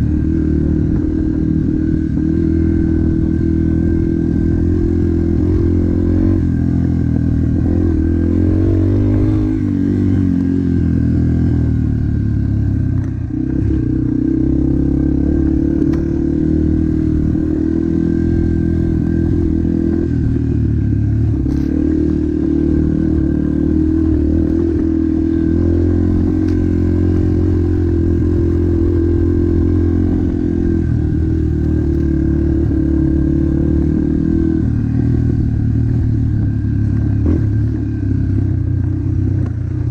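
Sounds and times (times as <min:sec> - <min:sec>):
motocross bike engine revving: 0:00.0 - 0:12.8.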